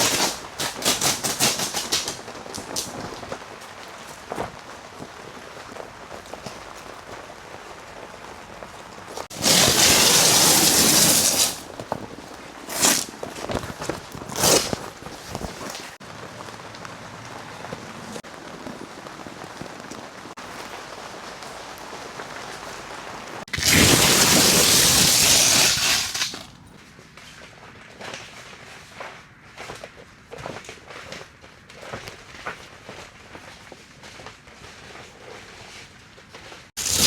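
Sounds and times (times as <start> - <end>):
rain falling: 0.0 - 26.6, 36.8 - 37.0.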